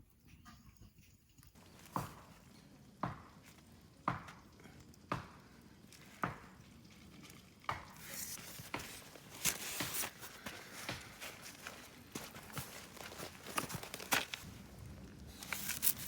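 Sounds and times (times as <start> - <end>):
rustling: 8.0 - 16.0.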